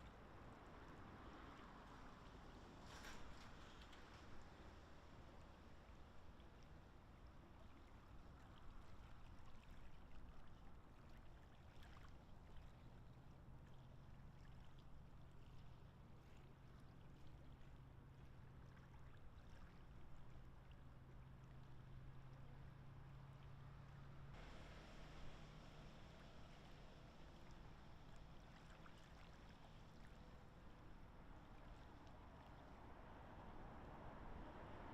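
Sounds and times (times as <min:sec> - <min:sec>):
faint water sounds: 0:00.0 - 0:34.9
low steady hum: 0:12.5 - 0:34.9.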